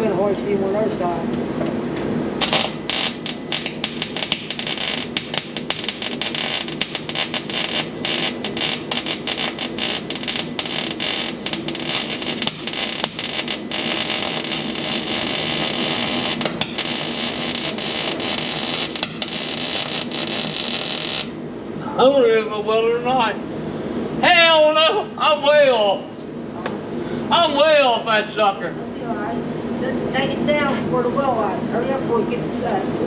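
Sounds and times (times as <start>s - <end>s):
arc welder crackling: 2.4s - 21.4s.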